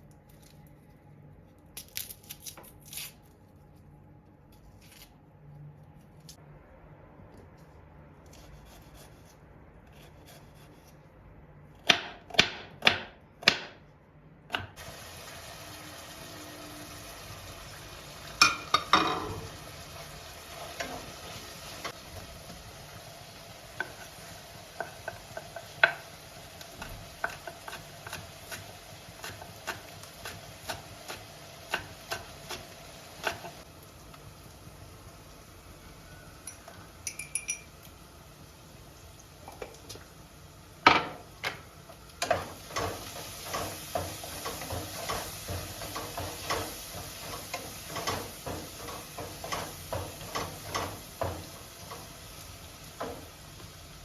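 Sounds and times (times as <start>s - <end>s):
food sizzling in a frying pan: 14.8s - 37.1s, 37.7s - 54.0s.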